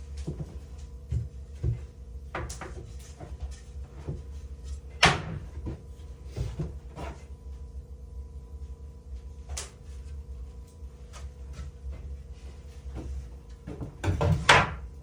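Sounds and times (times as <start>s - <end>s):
wood knocking and clunking: 12.9s - 14.8s.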